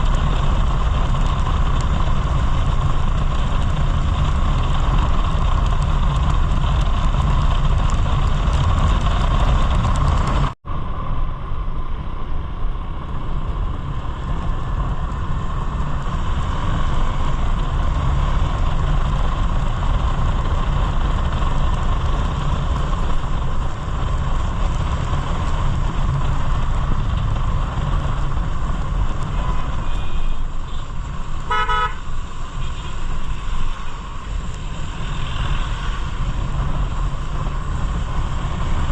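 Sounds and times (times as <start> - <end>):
motorcycle road rumble: 0.0 - 38.9
wind: 0.0 - 38.9
vehicle horn beep: 29.4 - 30.9, 31.5 - 32.0.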